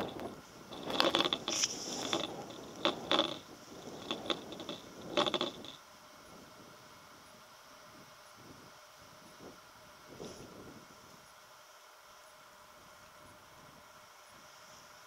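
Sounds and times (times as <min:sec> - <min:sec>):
clicking and clinking: 0:00.0 - 0:05.8.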